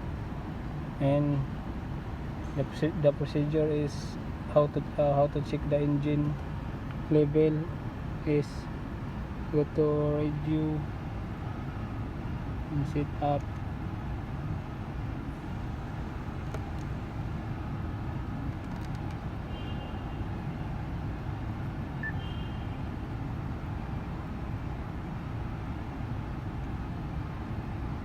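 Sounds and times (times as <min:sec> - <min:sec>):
faint short beeps: 0:22.0 - 0:22.6.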